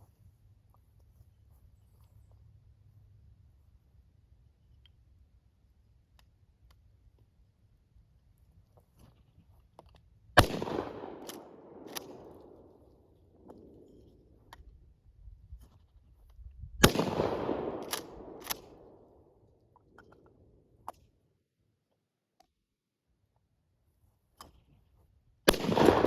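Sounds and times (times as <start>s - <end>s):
shotgun blasts with echo: 10.4s - 12.9s, 16.8s - 19.1s, 25.5s - 26.0s
shotgun pump clacks: 11.2s - 12.4s, 17.8s - 18.8s.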